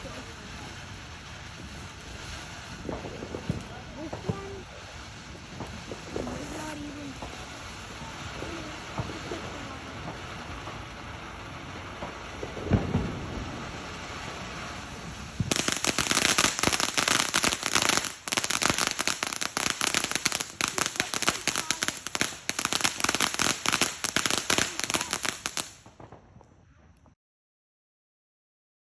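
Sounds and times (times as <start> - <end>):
fireworks crackling pops: 0.0 - 27.2
firework thump: 2.8 - 10.9.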